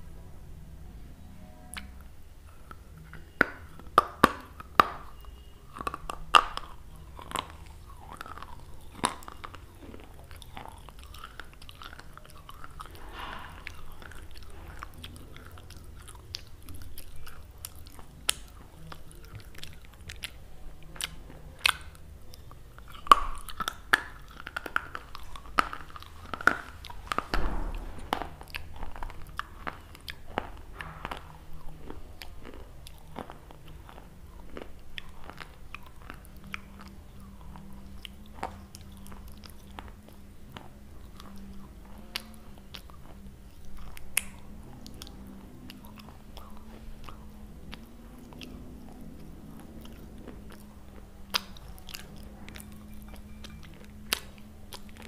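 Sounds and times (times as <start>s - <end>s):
crunching crisp biscuit: 1.7s - 55.0s.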